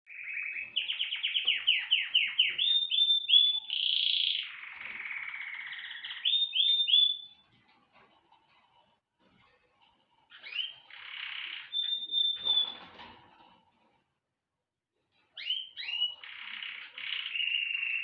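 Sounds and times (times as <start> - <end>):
songbird singing: 0.1 - 7.4, 10.4 - 12.8, 15.4 - 18.0.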